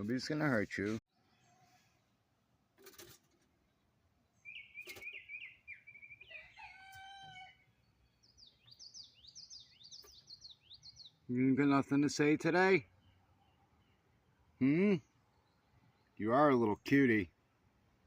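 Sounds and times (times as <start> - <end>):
small birds chirping: 0.0 - 17.5
rooster crowing: 6.2 - 7.7.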